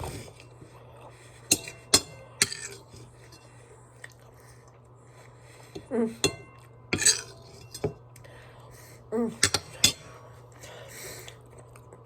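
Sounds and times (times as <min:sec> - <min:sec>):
utensil clinking against dish: 0:01.5 - 0:03.5, 0:06.2 - 0:08.0
heavy breath: 0:09.8 - 0:11.4.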